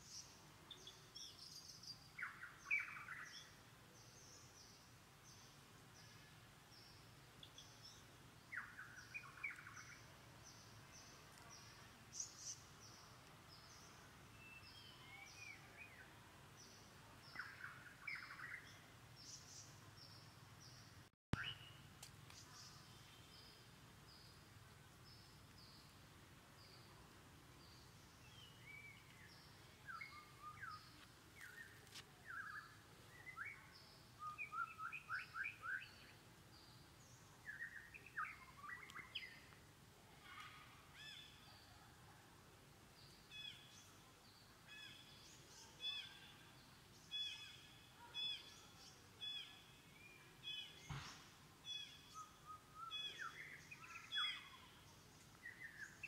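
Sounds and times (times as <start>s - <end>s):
single knock: 50.9s - 51.2s.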